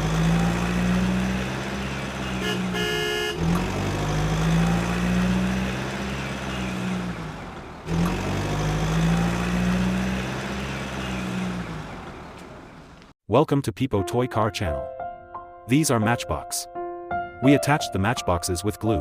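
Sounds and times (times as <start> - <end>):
vehicle engine hum: 0.0 - 13.2
short horn toot: 2.2 - 3.4.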